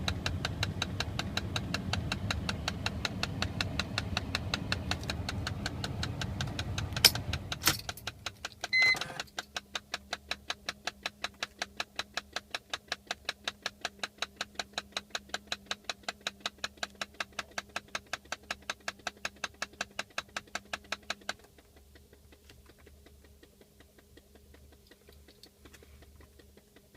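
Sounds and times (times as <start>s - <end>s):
car engine running: 0.0s - 26.9s
climate control hum: 0.0s - 26.9s
rapid even clicking: 0.0s - 26.9s
short beep: 8.7s - 9.1s.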